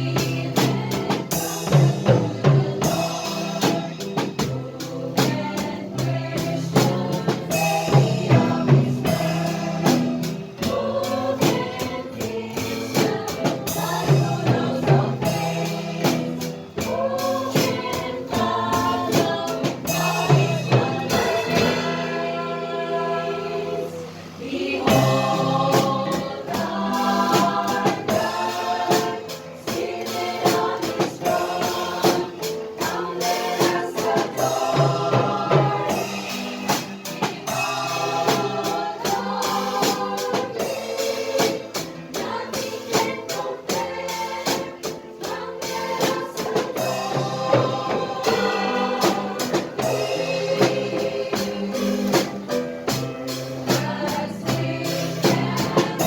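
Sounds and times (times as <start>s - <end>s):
drum kit beat: 0.0s - 22.7s, 24.1s - 56.0s
gospel choir singing: 0.0s - 56.0s.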